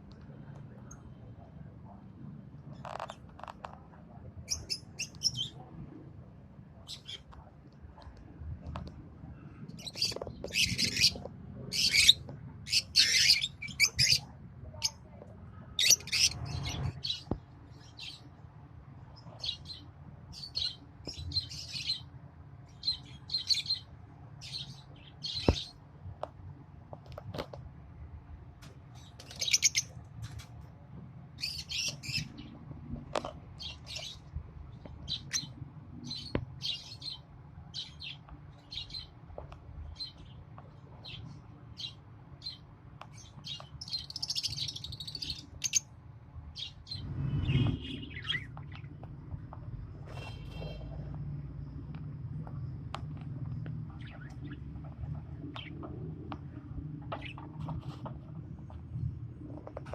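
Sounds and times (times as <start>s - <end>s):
lovebirds chirping: 4.4s - 5.7s, 9.7s - 15.0s, 15.7s - 18.4s, 22.7s - 25.8s, 28.9s - 30.0s, 39.9s - 45.9s, 46.6s - 51.0s, 53.4s - 56.0s.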